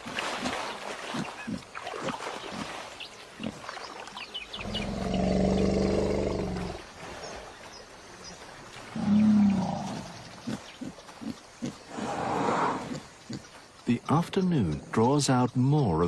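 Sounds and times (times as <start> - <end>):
long deep animal call: 4.6 - 6.8, 8.9 - 13.4.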